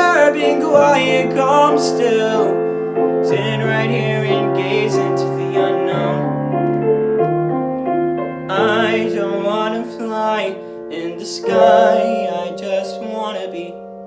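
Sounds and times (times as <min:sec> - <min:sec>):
person singing long notes: 0:00.0 - 0:02.7
piano playing slow chords: 0:00.0 - 0:14.0.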